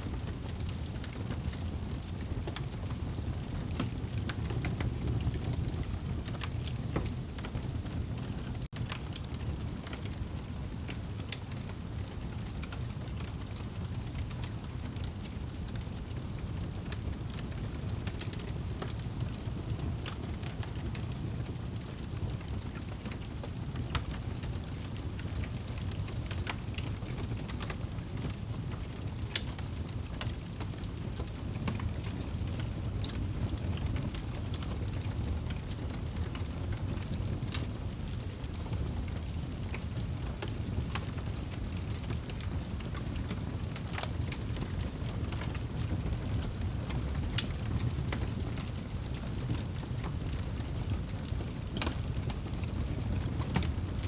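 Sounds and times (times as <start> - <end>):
fireplace fire crackling: 0.0 - 54.0.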